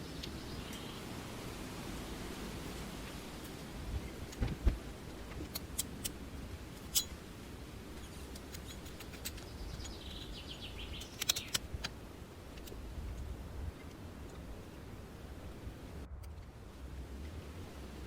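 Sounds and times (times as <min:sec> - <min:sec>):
small bird chirping: 0:00.0 - 0:01.1, 0:08.0 - 0:11.6
low outdoor rumble: 0:00.0 - 0:18.0.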